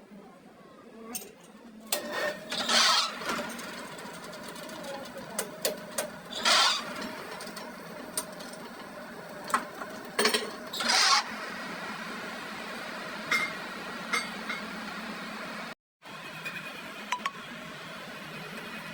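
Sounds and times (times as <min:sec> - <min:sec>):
workshop machine running: 0:01.8 - 0:18.9.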